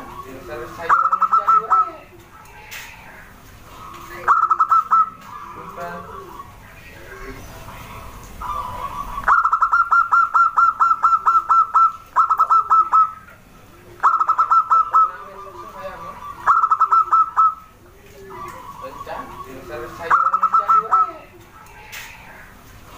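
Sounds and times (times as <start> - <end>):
dove calling rapid short notes: 0.0 - 3.1, 3.7 - 6.6, 8.4 - 13.3, 14.0 - 21.2
dove cooing: 0.0 - 22.9.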